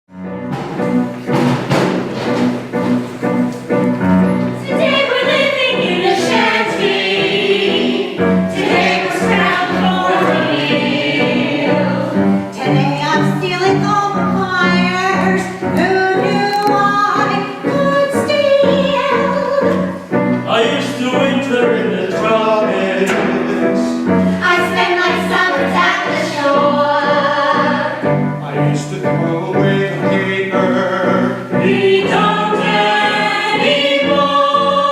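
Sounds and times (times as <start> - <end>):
instrumental accompaniment: 0.1 - 34.9
group singing show tune: 4.6 - 13.6, 15.3 - 34.9.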